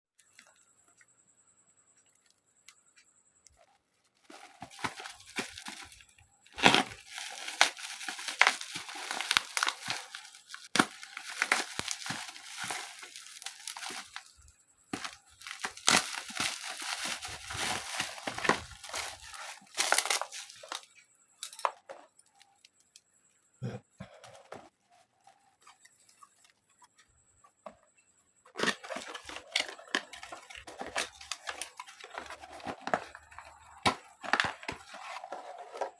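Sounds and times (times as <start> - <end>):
packaging torn and crinkled: 4.3 - 6.0, 6.6 - 14.3, 15.0 - 20.8.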